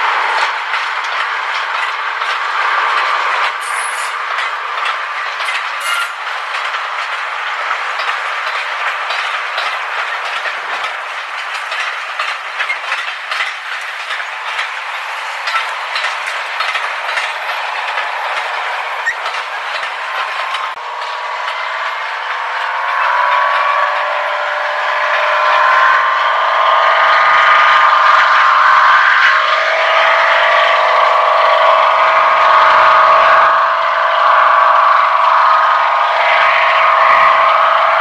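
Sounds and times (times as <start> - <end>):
wheels clicking over track: 0.0 - 26.0
train running on rails: 0.0 - 38.0.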